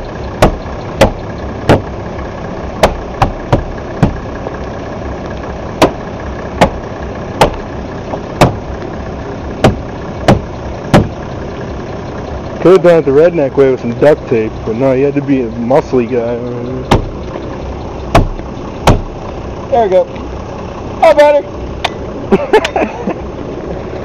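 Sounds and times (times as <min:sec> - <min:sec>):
sharp knocks of banging: 0:00.0 - 0:02.0, 0:02.8 - 0:04.2, 0:05.8 - 0:06.0, 0:06.6 - 0:06.8, 0:07.4 - 0:08.7, 0:09.6 - 0:11.2, 0:16.9 - 0:19.2
diesel engine idling: 0:00.0 - 0:24.0.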